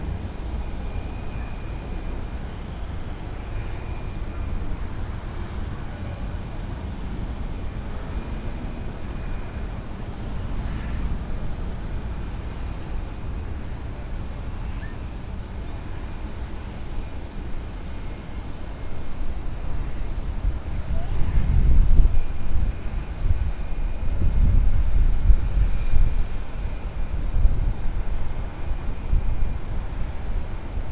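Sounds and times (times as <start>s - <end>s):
faint engine whine: 0.0s - 30.9s
jet engines rumbling: 0.0s - 30.9s
wind noise on microphone: 0.0s - 30.9s.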